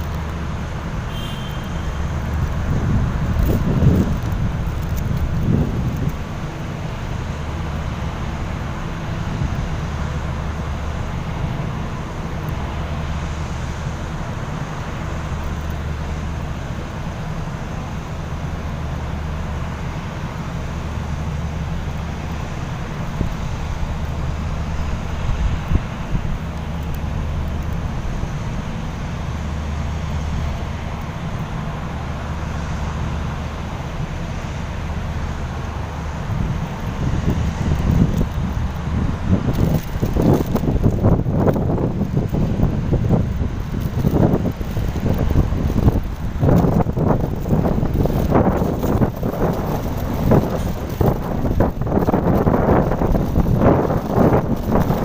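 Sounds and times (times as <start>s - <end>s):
low engine rumble: 0.0s - 55.0s
wind on microphone: 1.1s - 7.1s, 22.2s - 29.4s, 35.7s - 55.0s.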